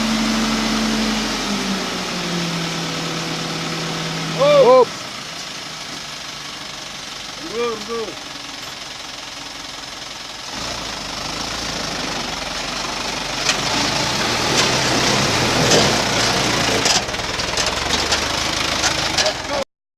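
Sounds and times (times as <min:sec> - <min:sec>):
truck engine running: 0:00.0 - 0:19.7
sharp clanks and rattles: 0:12.3 - 0:19.6.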